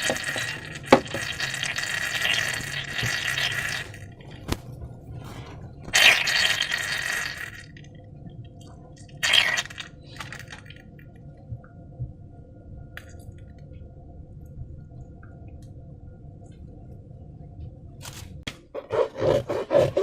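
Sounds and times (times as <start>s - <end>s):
wet slime squelching and pouring: 0.0s - 4.5s, 5.8s - 7.9s, 9.1s - 10.8s.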